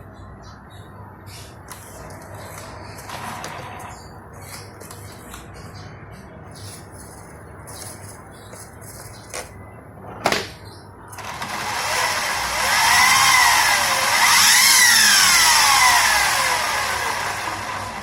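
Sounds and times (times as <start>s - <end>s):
rc helicopter motor and rotor whine: 11.2s - 18.0s.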